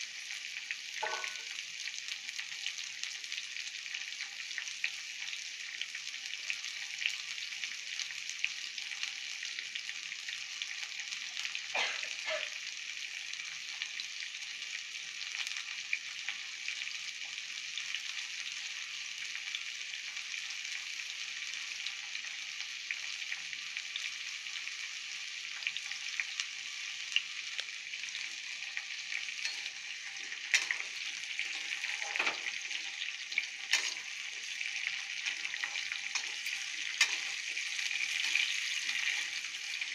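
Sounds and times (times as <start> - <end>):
food sizzling in hot oil: 0.0 - 39.9
spatula stirring in a pan: 27.6 - 39.9.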